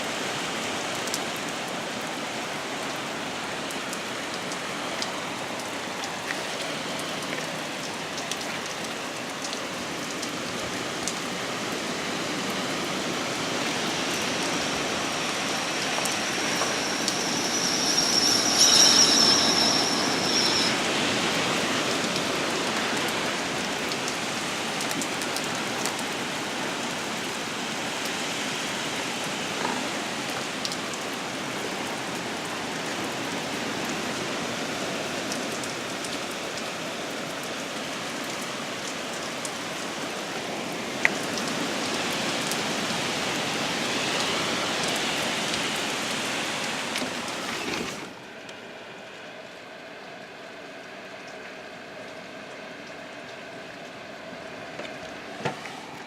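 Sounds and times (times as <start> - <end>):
heavy rain falling: 0.0 - 56.0
faint high-pitched tone: 14.2 - 21.0.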